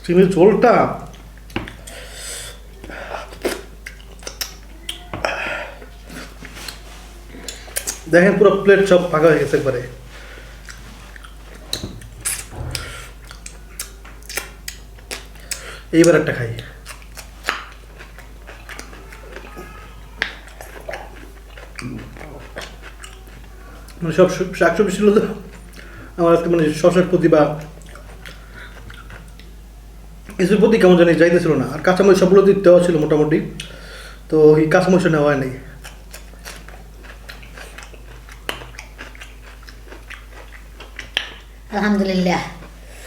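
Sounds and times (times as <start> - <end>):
chewing: 1.0 - 8.1, 9.0 - 26.0, 27.6 - 29.6, 35.7 - 41.7
wet mouth clicks and crunches: 3.4 - 5.0, 35.8 - 41.5.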